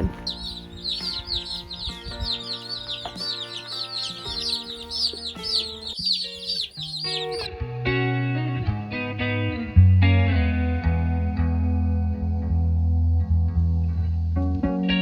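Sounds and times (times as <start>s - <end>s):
baby chicks peeping: 0.0s - 7.5s
guitar music: 0.0s - 15.0s.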